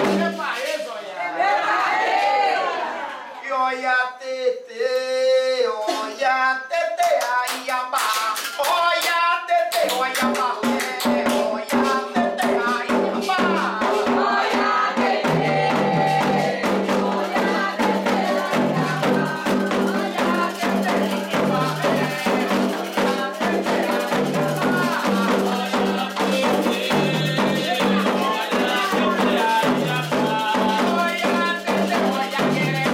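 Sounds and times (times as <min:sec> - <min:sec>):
rattles and drums: 0:00.0 - 0:00.9, 0:08.0 - 0:32.9
singing voices: 0:00.0 - 0:32.9.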